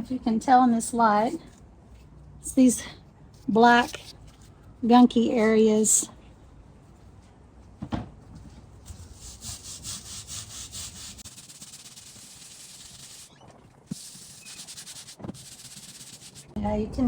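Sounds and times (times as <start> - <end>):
stiff brush scrubbing wood: 9.1 - 13.3, 13.9 - 16.6.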